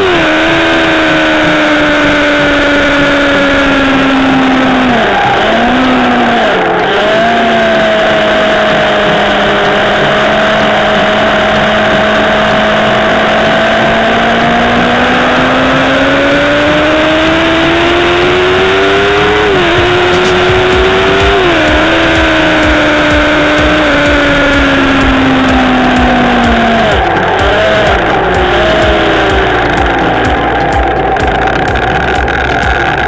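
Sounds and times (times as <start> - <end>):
motorcycle engine at speed: 0.0 - 33.0.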